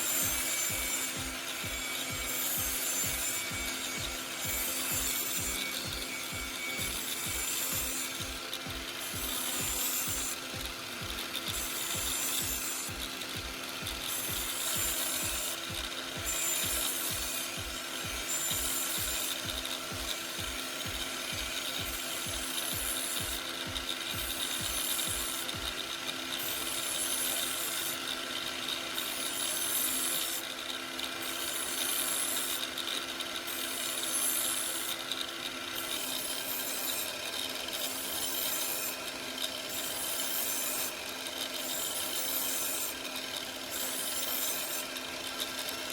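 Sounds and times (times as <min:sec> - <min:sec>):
knife rasping on abrasive disc: 0:00.0 - 0:25.8, 0:41.6 - 0:45.9
angle grinder whining: 0:00.0 - 0:45.9.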